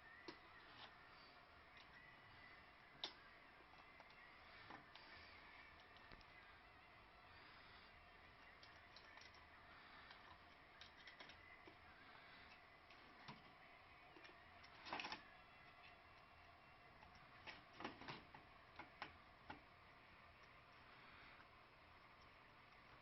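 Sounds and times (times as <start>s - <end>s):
low steady hiss: 0.0s - 23.0s
faint clicks and taps: 3.0s - 6.4s, 17.0s - 19.7s.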